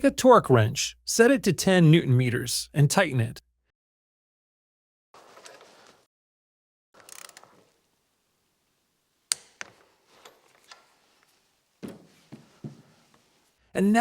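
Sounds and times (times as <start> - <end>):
torque wrench clicking: 7.1 - 7.4.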